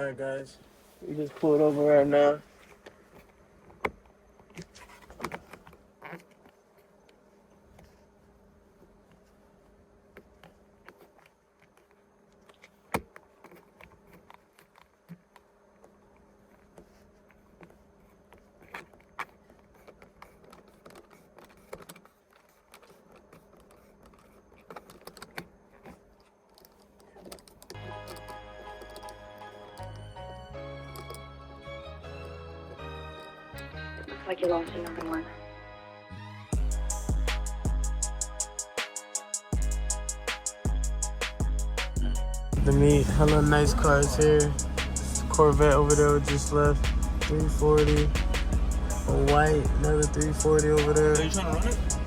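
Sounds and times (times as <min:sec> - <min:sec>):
small clicks and knocks: 0:16.6 - 0:29.2
music with a beat: 0:36.5 - 0:52.0
faint low hum: 0:39.6 - 0:52.0.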